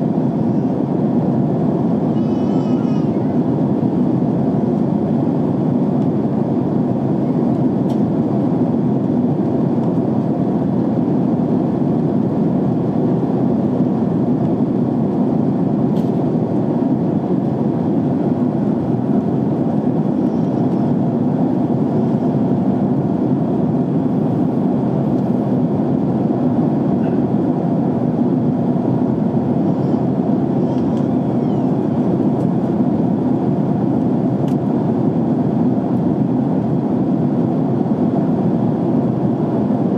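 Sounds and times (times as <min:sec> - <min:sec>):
airliner cabin noise: 0:00.0 - 0:39.9.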